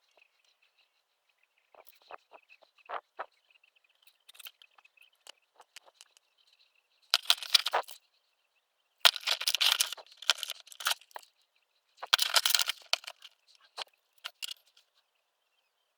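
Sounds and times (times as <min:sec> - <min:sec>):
small clicks and taps: 0:05.2 - 0:06.2.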